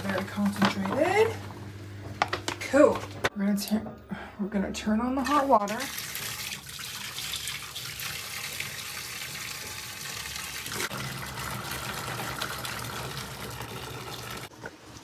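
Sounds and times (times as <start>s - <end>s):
tap water running into sink: 5.3s - 15.0s.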